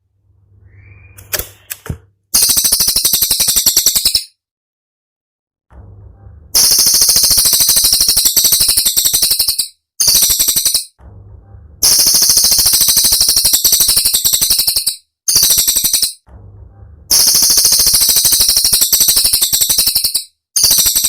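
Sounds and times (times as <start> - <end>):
bird song rapid rattling bursts: 2.4 - 4.3, 6.6 - 11.0, 11.8 - 16.2, 17.1 - 21.0.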